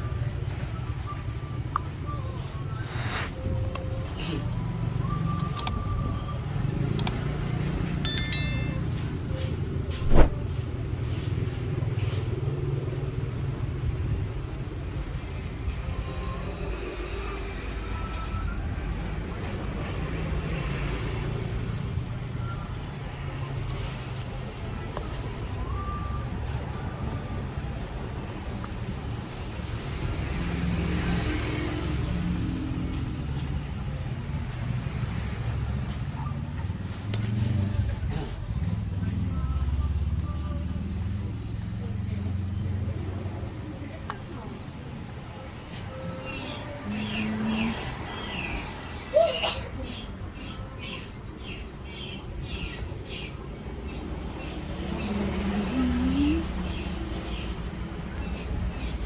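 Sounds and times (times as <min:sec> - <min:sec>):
vehicle engine rumbling: 0:00.0 - 0:16.4, 0:53.4 - 0:59.0.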